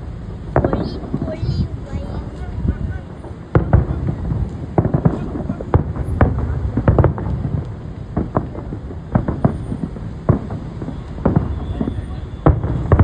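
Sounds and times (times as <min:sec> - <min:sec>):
fireworks bangs and pops: 0:00.0 - 0:13.0.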